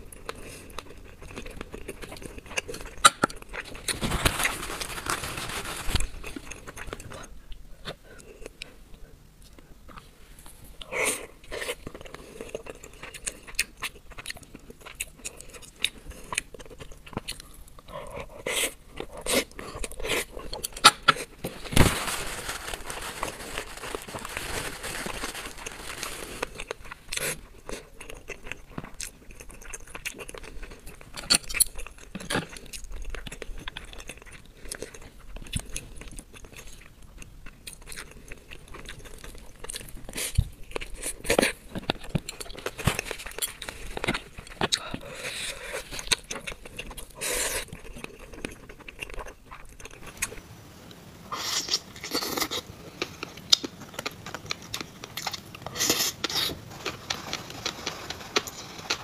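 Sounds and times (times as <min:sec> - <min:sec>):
wet chewing with crunches: 0:00.0 - 0:08.8, 0:10.7 - 0:21.8, 0:22.9 - 0:50.4, 0:51.4 - 0:59.0.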